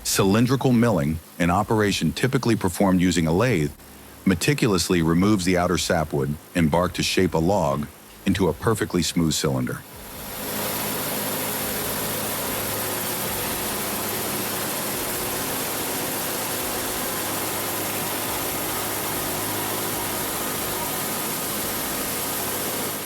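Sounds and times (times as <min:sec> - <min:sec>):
lathe hiss: 0:09.0 - 0:23.0
lathe machine hum: 0:09.8 - 0:23.0.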